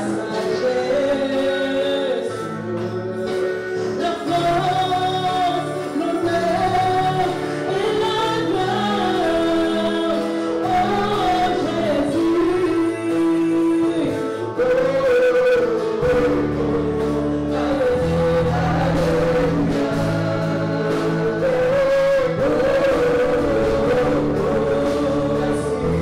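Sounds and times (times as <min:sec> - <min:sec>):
gospel singing voices: 0:00.0 - 0:26.0
instrumental accompaniment with bass: 0:00.0 - 0:26.0.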